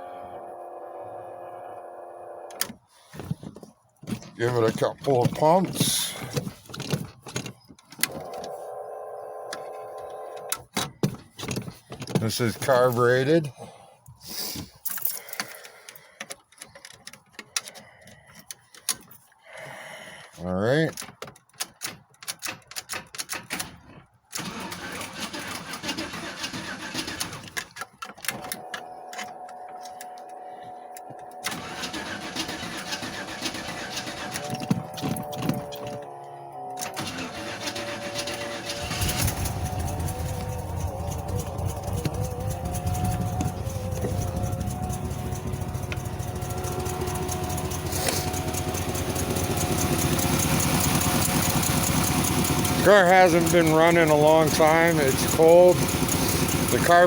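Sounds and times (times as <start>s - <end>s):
engine cranking and running unevenly: 4.2s - 7.0s, 11.8s - 13.4s, 24.4s - 57.0s.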